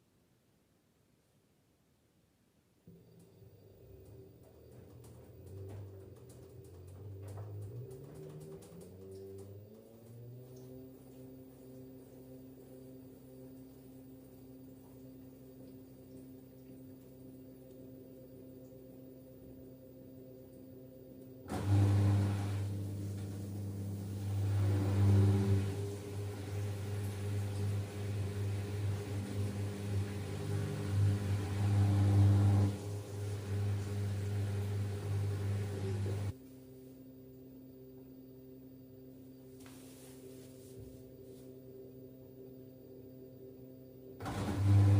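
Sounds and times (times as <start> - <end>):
washing machine spinning: 2.9 - 36.4, 43.6 - 44.9
drain pump humming: 2.9 - 41.5, 42.2 - 44.9.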